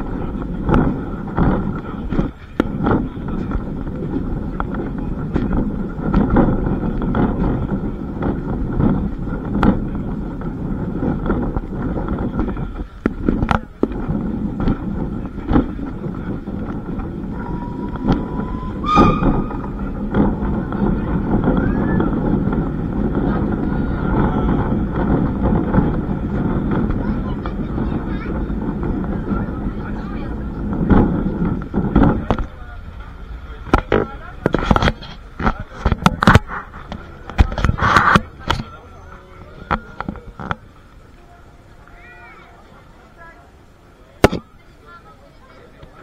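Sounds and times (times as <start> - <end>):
train rumbling: 0.0 - 41.9
short high-pitched tone: 17.4 - 19.8.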